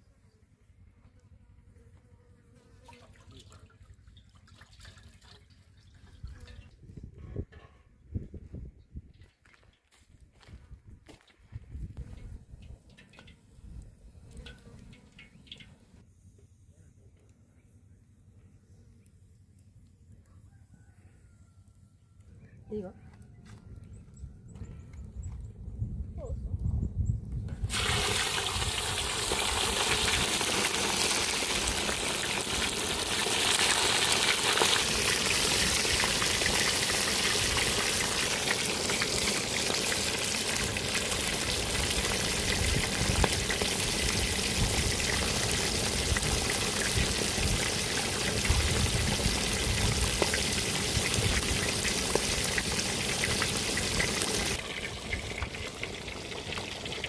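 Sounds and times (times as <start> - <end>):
fish sizzling in hot oil: 27.7 - 57.0.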